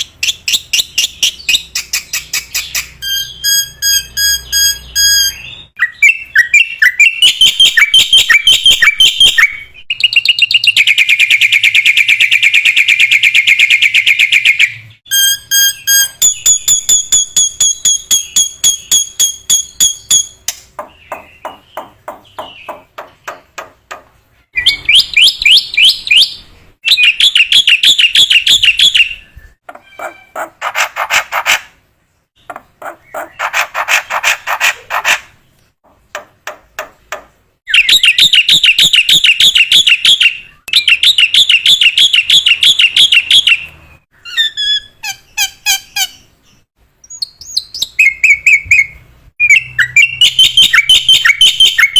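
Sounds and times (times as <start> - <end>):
starling singing: 0.0 - 31.0.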